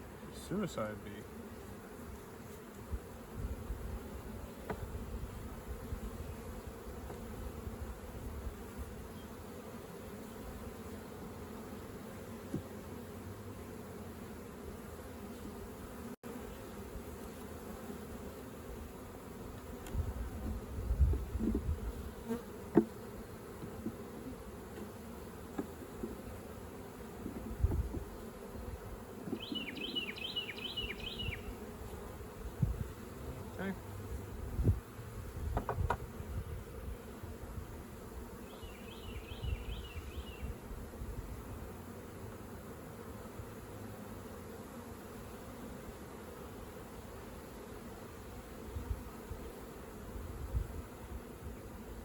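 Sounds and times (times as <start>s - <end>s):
honeybees buzzing: 0.0s - 52.0s
low thumps and knocks: 35.5s - 36.1s.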